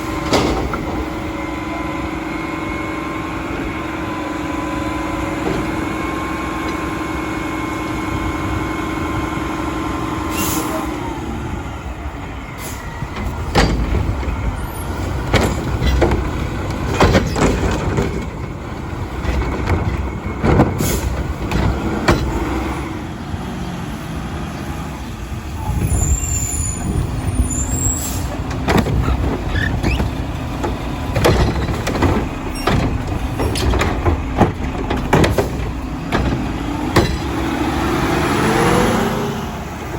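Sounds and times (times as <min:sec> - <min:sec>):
metal clanks and bangs: 0:00.0 - 0:01.8, 0:12.6 - 0:23.0, 0:26.6 - 0:38.9
garbage truck engine running: 0:00.0 - 0:39.9.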